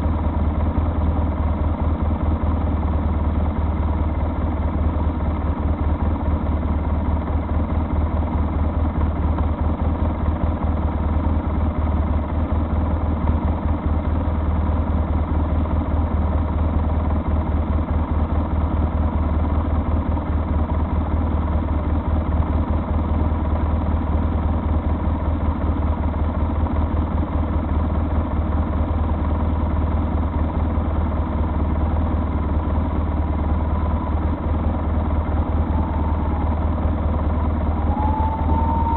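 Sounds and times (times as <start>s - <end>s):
vehicle engine running: 0.0s - 38.9s
road noise: 30.9s - 38.9s.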